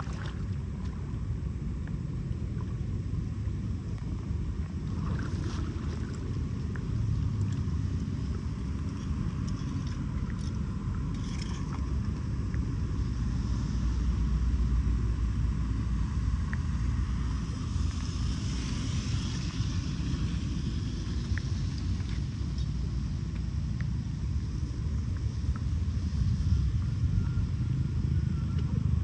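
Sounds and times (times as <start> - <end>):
water draining low rumble: 0.0 - 29.0
small ticks: 21.1 - 24.0.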